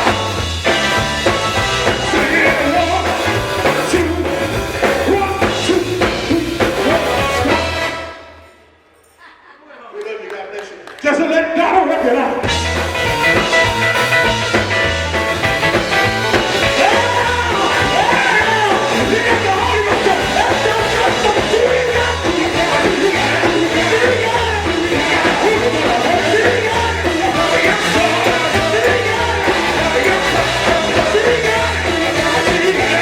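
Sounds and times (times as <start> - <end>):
pulsing bass line: 0.0 - 7.9, 12.5 - 33.0
people singing: 0.0 - 8.3, 15.4 - 33.0
gospel band playing: 0.0 - 8.7, 10.1 - 33.0.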